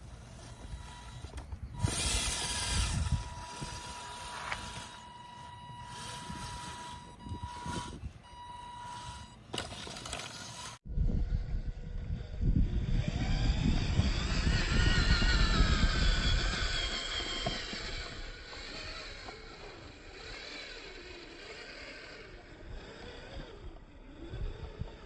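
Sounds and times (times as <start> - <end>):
small gear motor whining: 0.0 - 10.9, 11.6 - 25.0
low rumble: 10.9 - 16.8.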